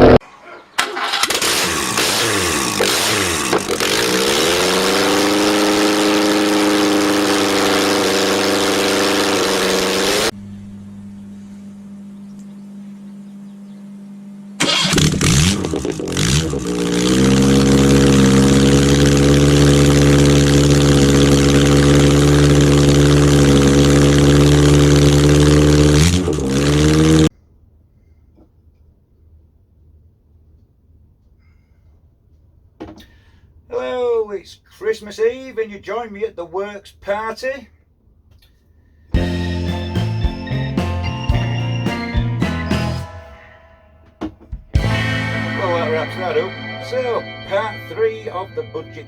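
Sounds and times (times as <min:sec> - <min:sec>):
engine revving: 0:00.0 - 0:00.2, 0:00.8 - 0:10.4, 0:14.6 - 0:27.3, 0:44.8 - 0:49.0
engine starting and idling: 0:00.8 - 0:10.3, 0:14.6 - 0:27.3
low hum: 0:09.2 - 0:27.5, 0:44.8 - 0:49.0.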